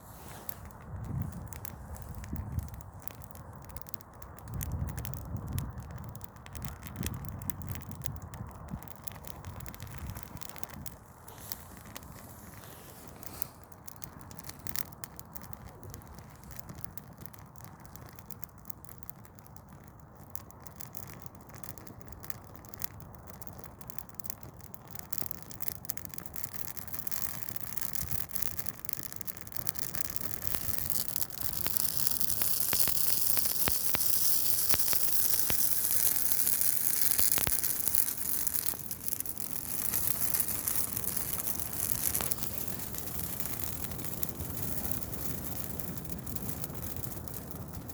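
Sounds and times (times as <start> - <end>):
loud hiss of fire: 0.0 - 47.9
tree fire crackling and popping: 0.0 - 47.9.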